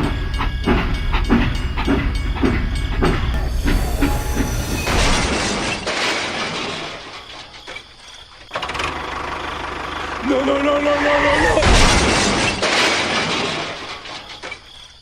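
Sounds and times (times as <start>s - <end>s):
rhythmic mechanical clatter: 0.0s - 7.5s.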